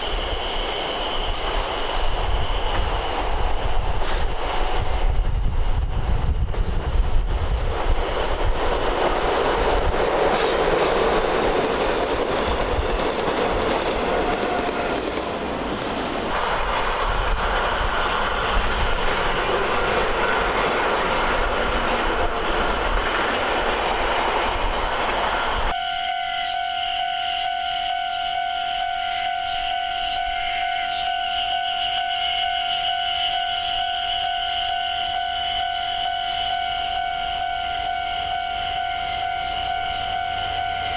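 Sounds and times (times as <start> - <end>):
train wheels rumbling on rails: 0.0 - 25.8.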